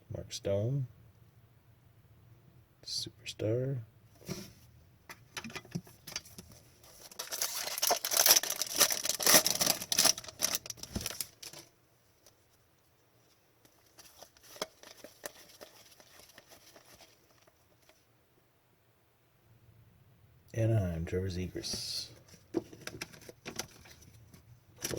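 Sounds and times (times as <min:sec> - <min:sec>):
cards clicking and rustling: 0:07.0 - 0:11.7, 0:13.7 - 0:17.6
wrapper tearing and crinkling: 0:07.0 - 0:11.7.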